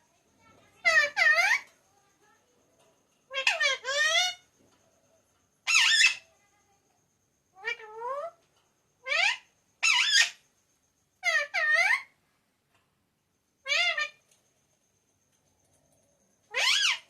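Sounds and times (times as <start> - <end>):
parrot squeaking: 5.7 - 6.2, 9.0 - 10.4, 16.5 - 17.0.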